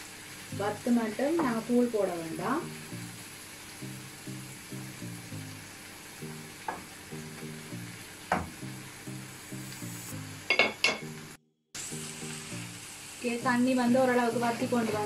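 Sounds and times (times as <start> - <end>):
food sizzling in a frying pan: 0.0 - 15.0
wooden spatula knocking a pan: 8.3 - 8.7.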